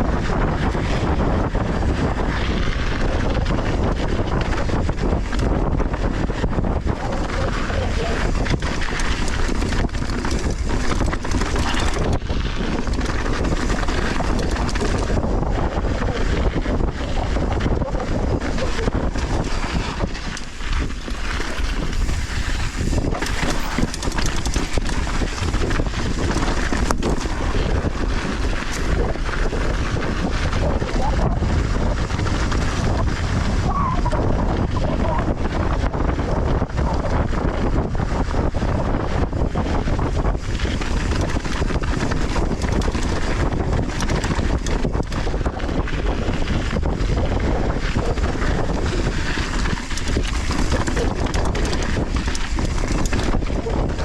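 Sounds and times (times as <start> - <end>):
bike rattling on bumps: 0.0 - 54.0
wind buffeting microphone: 0.0 - 54.0
tyres rolling on loose dirt: 0.7 - 54.0.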